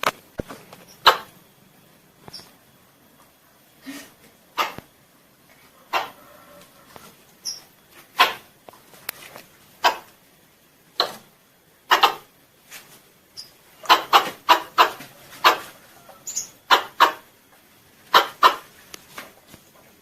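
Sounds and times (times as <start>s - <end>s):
squirrel chucking calls: 0.9s - 1.4s, 3.8s - 4.9s, 5.9s - 6.2s, 7.4s - 8.5s, 9.8s - 10.2s, 11.8s - 12.3s, 13.4s - 17.3s, 18.1s - 18.7s.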